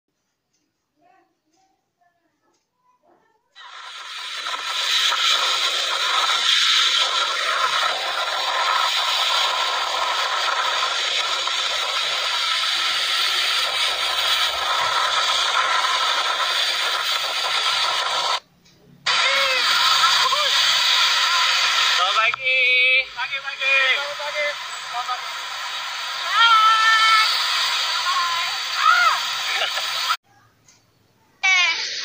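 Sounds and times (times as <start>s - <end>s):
rain hissing: 3.6s - 18.4s, 19.1s - 30.2s, 31.4s - 32.0s
tyres spraying water on wet road: 3.6s - 18.4s, 19.1s - 22.4s, 23.2s - 30.2s.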